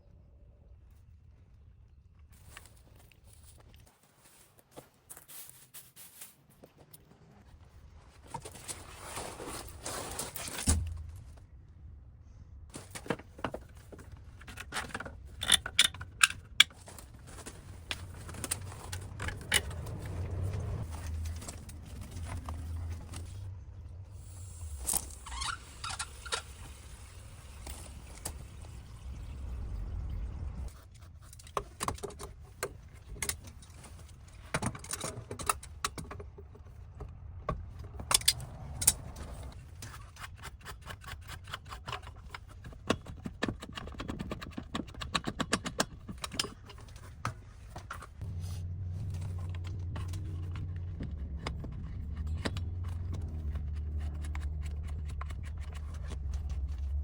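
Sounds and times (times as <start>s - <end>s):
low steady rumble: 9.5s - 30.8s, 35.4s - 39.8s, 46.8s - 57.0s.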